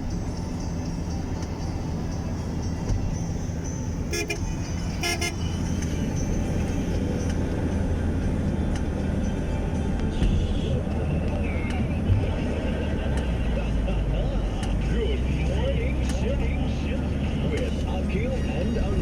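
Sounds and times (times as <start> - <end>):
road vehicle rumbling: 0.0 - 19.0
vehicle horn toots: 3.9 - 5.9.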